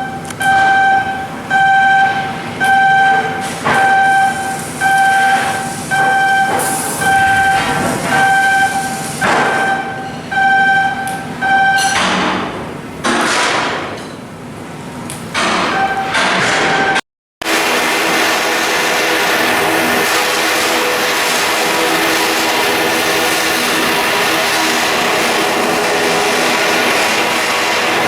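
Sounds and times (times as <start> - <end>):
electronic warning beeps: 0.0 - 12.0, 15.7 - 17.0
clatter of shipyard work: 0.0 - 28.0
loud rushing bursts: 17.4 - 28.0.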